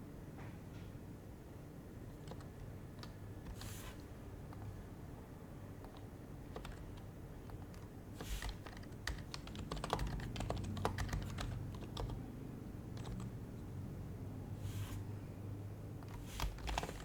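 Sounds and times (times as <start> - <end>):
soft keyboard keystrokes: 2.1 - 12.2, 12.9 - 13.7, 16.0 - 17.0.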